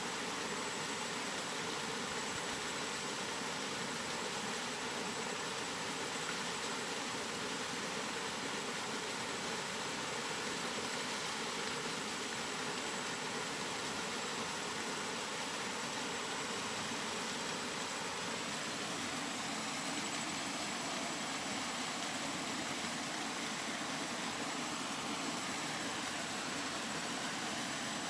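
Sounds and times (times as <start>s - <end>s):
steady rain hiss: 0.0s - 28.0s.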